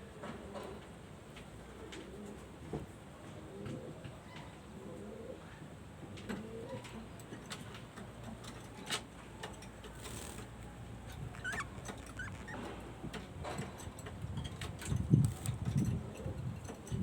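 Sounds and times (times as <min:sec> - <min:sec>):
pigeons cooing: 0:11.1 - 0:12.9.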